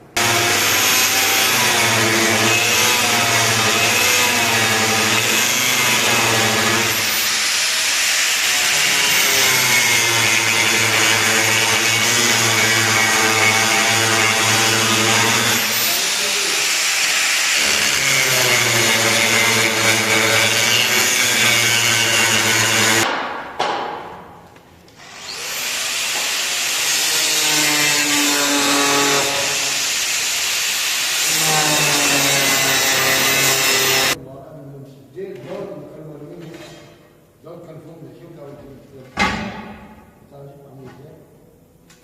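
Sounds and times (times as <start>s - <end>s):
angle grinder on metal: 0.2s - 23.1s, 25.0s - 34.2s.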